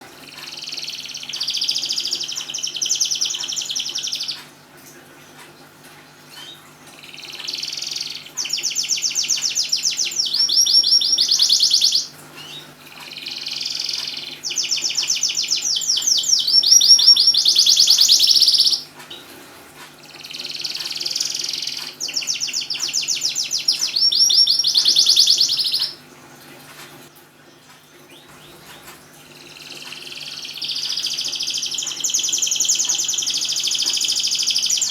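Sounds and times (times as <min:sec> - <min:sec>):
canary singing trills: 0:00.0 - 0:05.4, 0:06.2 - 0:19.4, 0:20.0 - 0:26.2, 0:27.0 - 0:34.9.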